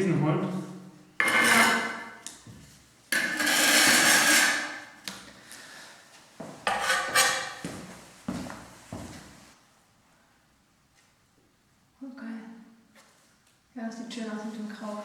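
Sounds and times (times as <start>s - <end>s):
tiles scraping: 1.2s - 2.2s, 3.1s - 5.0s, 6.7s - 7.6s.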